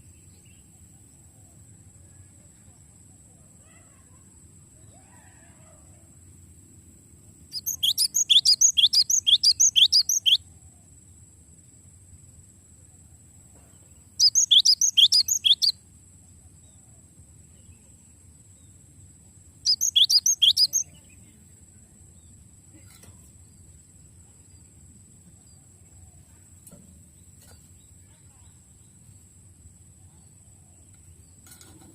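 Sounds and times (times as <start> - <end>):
tit singing rapid repeated notes: 7.6 - 10.4, 14.2 - 15.7, 19.7 - 20.8.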